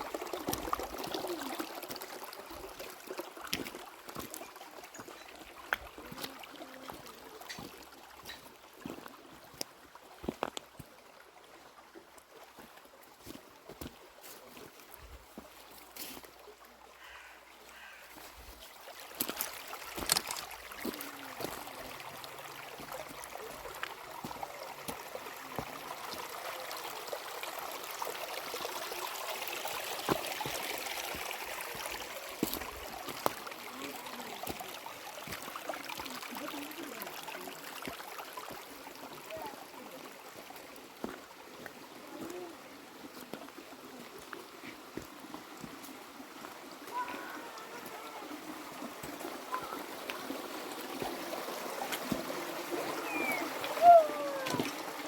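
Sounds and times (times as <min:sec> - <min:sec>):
river water rushing: 0:18.6 - 0:55.0.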